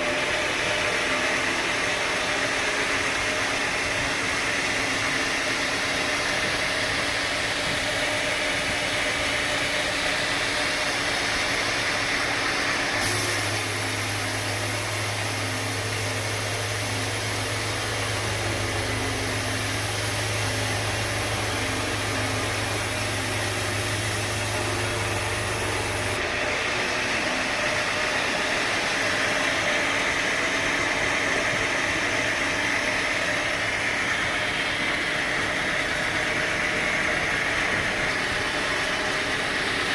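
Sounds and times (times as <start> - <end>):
sawmill machinery running: 0.0 - 39.9
hiss: 0.2 - 26.2
deep steady hum: 2.0 - 27.5.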